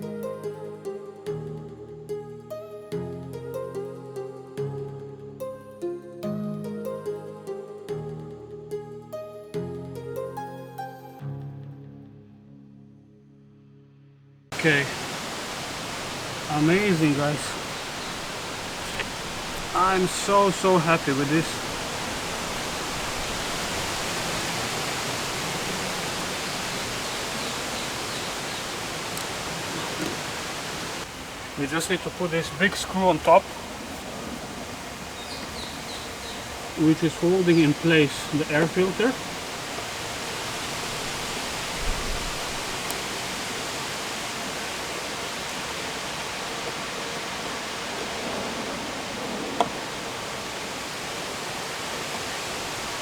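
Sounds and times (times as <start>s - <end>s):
steady hiss: 14.5s - 53.0s.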